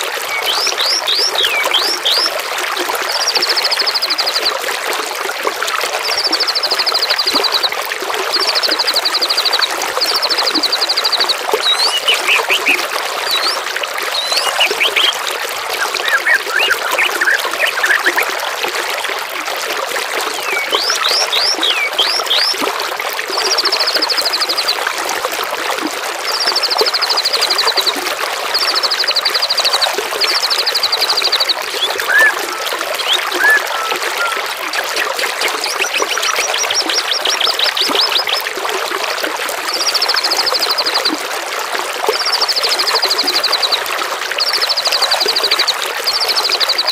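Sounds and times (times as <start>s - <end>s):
songbirds singing: 0.0s - 2.4s, 3.1s - 4.6s, 6.0s - 18.3s, 20.2s - 22.7s, 26.3s - 38.6s, 42.1s - 43.8s, 44.4s - 46.9s
running water: 0.0s - 46.9s
buzzy high bird trill: 10.2s - 15.2s, 15.8s - 18.2s.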